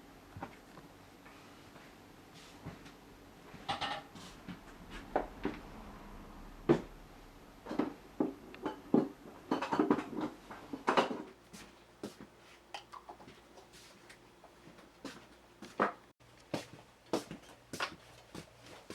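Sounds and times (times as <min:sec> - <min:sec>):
tools clattering on a workbench: 0:03.6 - 0:04.2, 0:07.7 - 0:11.4.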